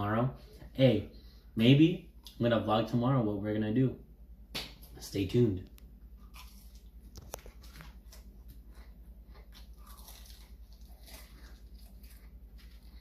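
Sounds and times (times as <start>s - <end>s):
low steady hum: 0.0s - 13.0s
person chewing crunchy food: 6.1s - 13.0s.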